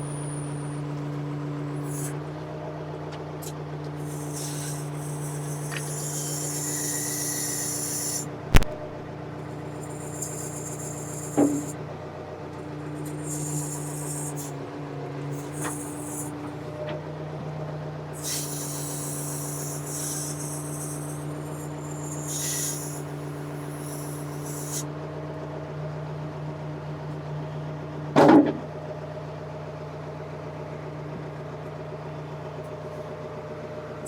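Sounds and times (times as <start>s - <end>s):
hiss: 4.0s - 8.3s, 9.7s - 11.8s, 13.0s - 14.5s, 15.4s - 16.4s, 18.2s - 24.8s.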